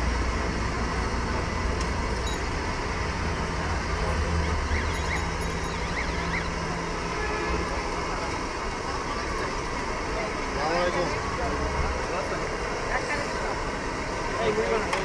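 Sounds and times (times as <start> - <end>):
rumble of passing vehicles: 0.0 - 15.0
faint wavering high tone: 4.3 - 6.8.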